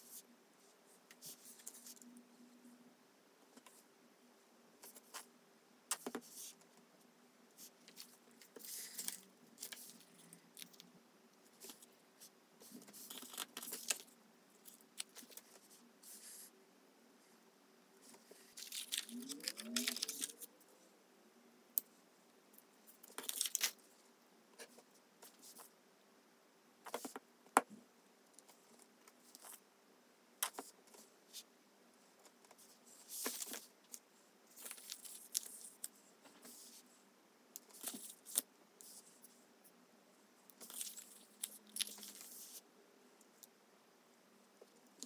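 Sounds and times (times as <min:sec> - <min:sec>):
paper and plastic rustling: 0:18.1 - 0:20.4.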